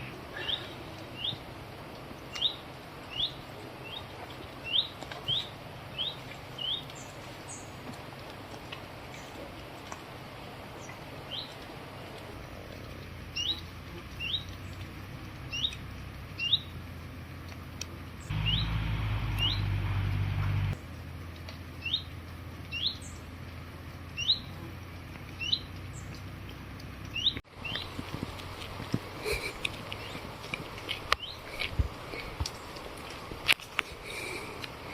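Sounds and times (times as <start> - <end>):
small songbird chirping: 2.3 - 7.8, 13.1 - 14.8, 15.4 - 15.8, 16.4 - 16.8, 18.2 - 19.8, 21.8 - 23.4, 24.1 - 28.0, 31.1 - 31.6
low rumble: 18.3 - 21.8.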